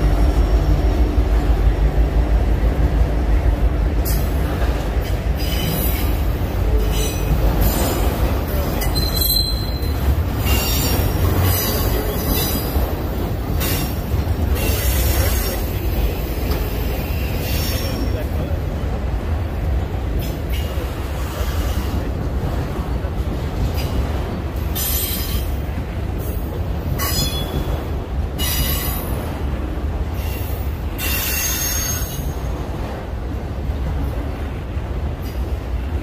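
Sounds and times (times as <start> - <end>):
diesel locomotive engine hum: 0.0 - 36.0
train wheels rumbling on rail: 0.0 - 36.0
wheel flanges squealing: 5.4 - 12.8.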